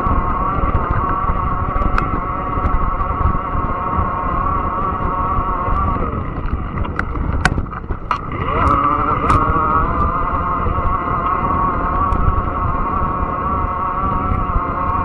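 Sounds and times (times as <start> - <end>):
electric bike motor whining: 0.0 - 15.0
tyre and wind rumble: 0.0 - 15.0
sharp clicks and ticks: 0.7 - 2.8, 5.7 - 12.4.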